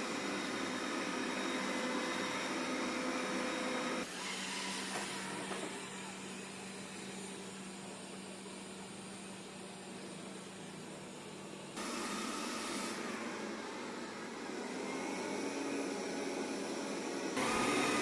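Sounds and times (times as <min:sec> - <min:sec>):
robot vacuum motor hum: 0:11.8 - 0:18.0.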